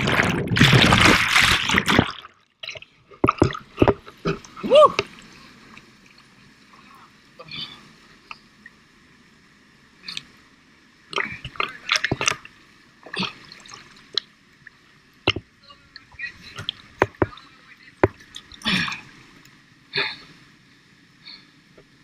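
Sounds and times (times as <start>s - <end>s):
water splashing and dripping: 0.0s - 6.3s, 11.1s - 19.6s.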